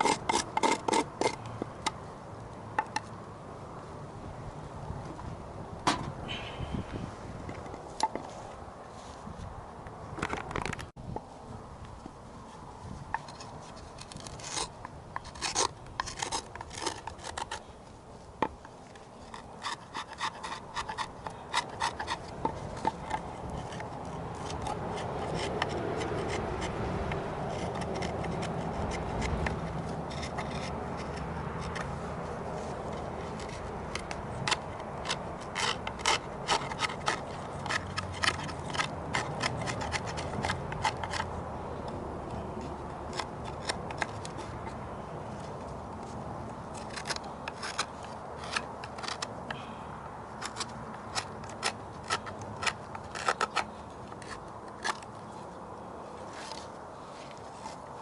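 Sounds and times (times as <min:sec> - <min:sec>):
hand tool scraping wood: 0:00.0 - 0:02.0, 0:12.5 - 0:17.8, 0:18.4 - 0:49.7, 0:50.3 - 0:55.6.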